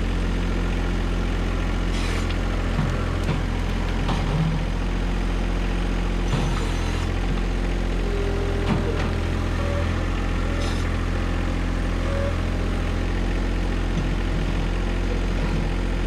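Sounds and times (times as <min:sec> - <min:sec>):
tractor diesel engine running: 0:00.0 - 0:16.0
knocks and clunks: 0:02.7 - 0:04.7.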